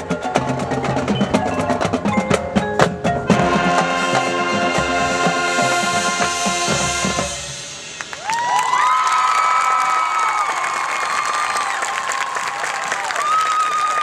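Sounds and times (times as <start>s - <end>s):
marching band playing: 0.0s - 8.4s
rapid drum and mallet percussion hits: 0.0s - 8.5s.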